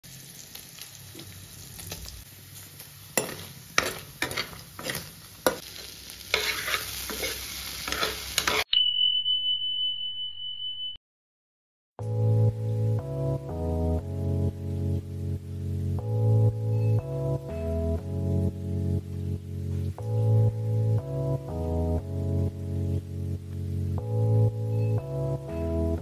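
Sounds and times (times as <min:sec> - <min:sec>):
food sizzling in hot oil: 0:00.0 - 0:08.7, 0:12.6 - 0:26.0
steel ladle scraping pan: 0:03.2 - 0:08.7
piano music: 0:12.0 - 0:26.0.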